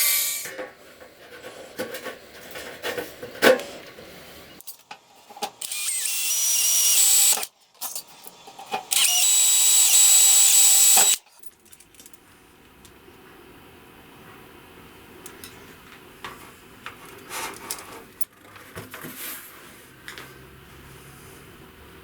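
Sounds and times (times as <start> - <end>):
belt grinder hissing and whining: 5.6 - 7.5, 8.9 - 11.2.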